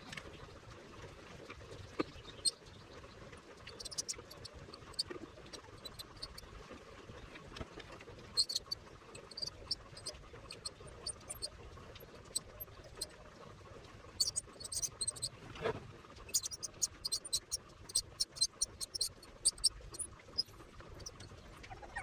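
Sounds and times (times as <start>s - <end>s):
low steady background noise: 0.0s - 22.0s
ultrasonic cutter ticks and crackles: 3.6s - 6.4s, 8.4s - 13.2s, 14.2s - 15.3s, 16.3s - 21.3s.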